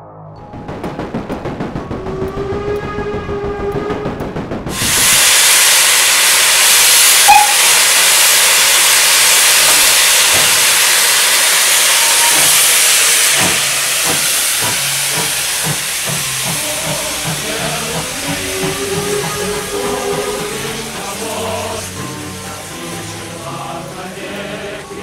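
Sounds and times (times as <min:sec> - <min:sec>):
low irregular knocks: 0:00.4 - 0:05.4, 0:12.4 - 0:22.3
steam locomotive hissing: 0:00.5 - 0:25.0.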